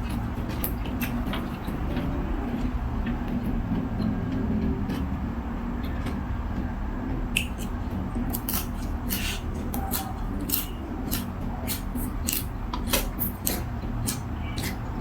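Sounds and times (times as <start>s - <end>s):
crunchy chewing: 0.0s - 2.7s, 7.4s - 15.0s
steady low hum: 0.0s - 15.0s.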